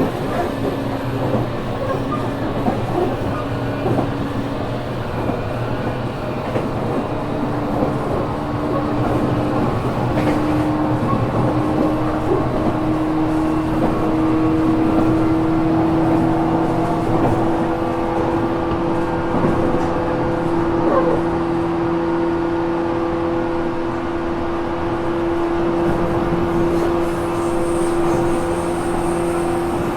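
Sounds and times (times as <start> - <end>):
wheel and rail rumble: 0.0 - 29.9.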